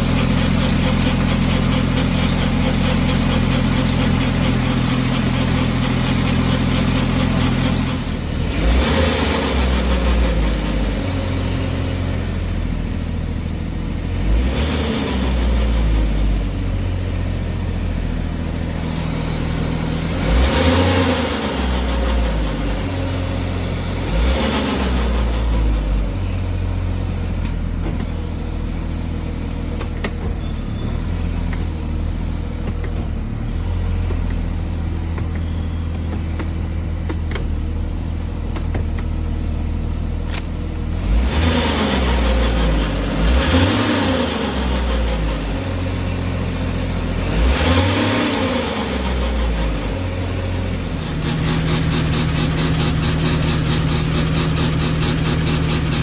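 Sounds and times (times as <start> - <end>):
car engine revving: 0.0 - 16.4, 18.6 - 27.4, 40.9 - 56.0
car engine running: 0.0 - 56.0.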